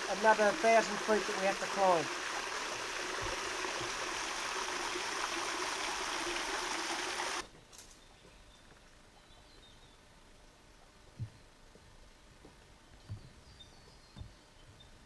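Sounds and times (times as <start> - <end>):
creek water rushing: 0.0 - 7.4.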